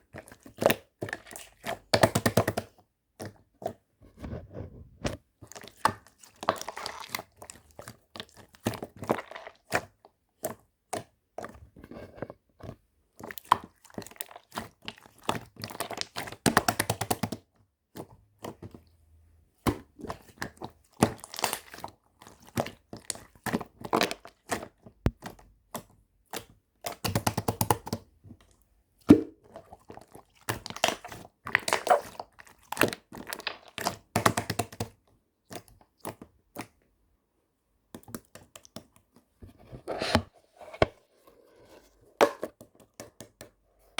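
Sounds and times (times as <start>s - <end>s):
hands crunching and crinkling material: 5.5s - 9.9s, 29.3s - 34.9s.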